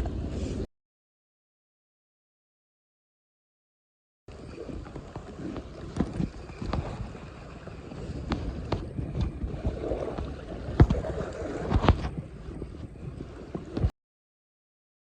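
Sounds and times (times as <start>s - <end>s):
low rumbling and water noise: 0.0s - 0.7s, 4.3s - 13.9s.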